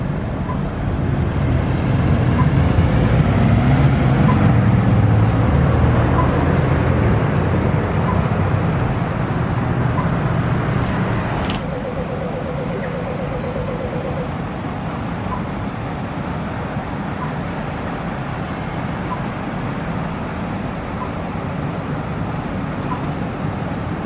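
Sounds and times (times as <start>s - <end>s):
vehicle engine rumble: 0.0s - 24.0s
faint short beep: 11.6s - 14.3s.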